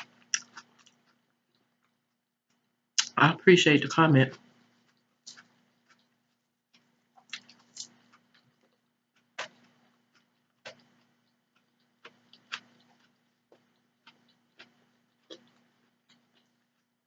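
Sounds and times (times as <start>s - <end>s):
wet eating clicks and smacks: 0.0s - 3.2s, 4.3s - 17.0s
faint steady hum: 0.0s - 17.0s.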